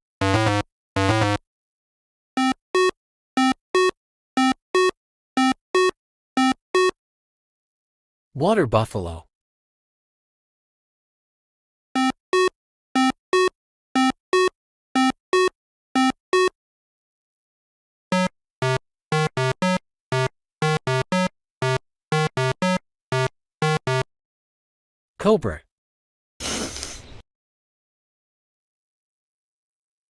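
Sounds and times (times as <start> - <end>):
synthesizer beeps: 0.2 - 1.4, 18.1 - 24.0.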